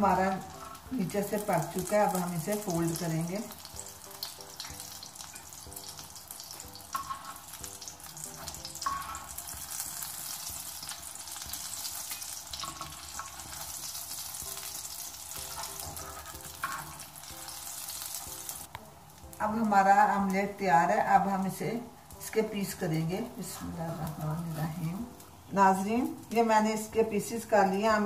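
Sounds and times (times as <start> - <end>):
omelette sizzling in oil: 0.0 - 28.0
metal spatula scraping and tapping: 6.6 - 10.0, 10.8 - 13.9, 15.3 - 17.6.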